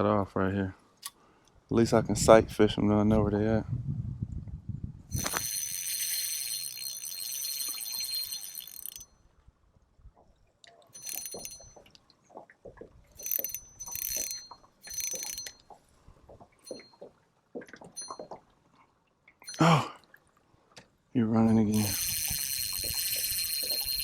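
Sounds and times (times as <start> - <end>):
fishing reel drag buzzing: 5.1 - 9.1, 11.0 - 11.8, 13.2 - 15.5, 21.5 - 24.0.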